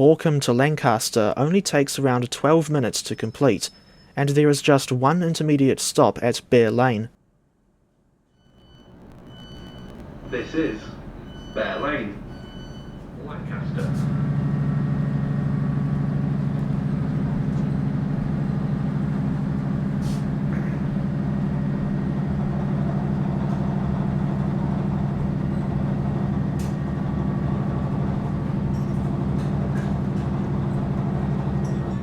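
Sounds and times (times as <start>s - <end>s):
diesel engine drone: 8.6s - 32.0s.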